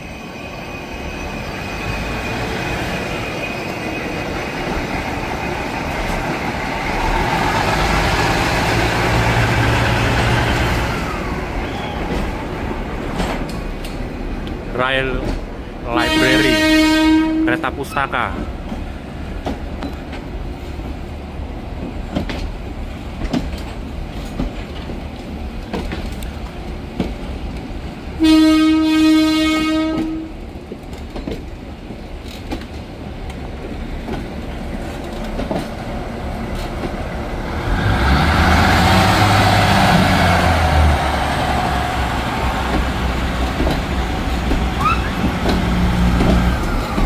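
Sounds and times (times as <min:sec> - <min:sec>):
train rumbling: 0:00.0 - 0:47.0
locomotive engine: 0:00.8 - 0:16.8, 0:32.0 - 0:47.0
train horn blast: 0:15.9 - 0:17.8, 0:28.2 - 0:30.4.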